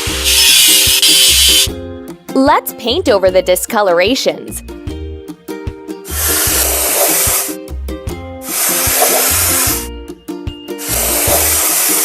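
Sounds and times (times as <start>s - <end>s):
spray paint hissing: 0.0s - 1.7s, 6.1s - 7.6s, 8.4s - 9.9s, 10.8s - 12.0s
children's music with bass beat: 0.0s - 12.0s.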